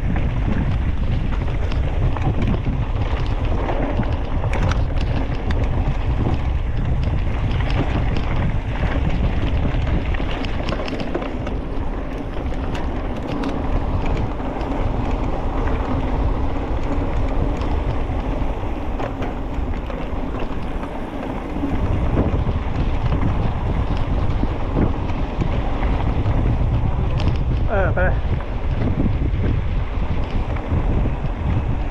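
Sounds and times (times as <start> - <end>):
scattered crackles: 0.0 - 31.9
wind buffeting microphone: 0.0 - 31.9.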